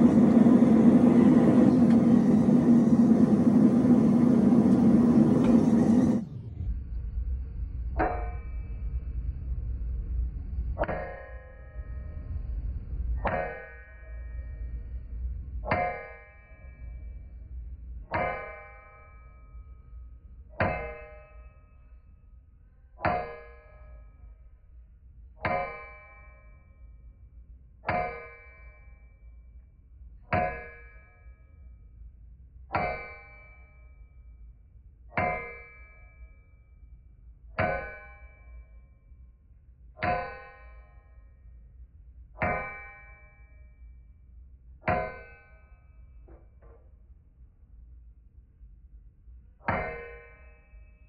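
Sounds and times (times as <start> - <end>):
hammer striking metal on anvil: 18.1 - 19.2, 20.6 - 21.6, 23.0 - 24.1, 25.4 - 26.6, 27.8 - 28.9, 30.3 - 31.1, 32.7 - 34.0, 35.2 - 36.3, 37.6 - 38.8, 40.0 - 41.1, 42.4 - 43.5, 44.9 - 46.8, 49.6 - 51.0.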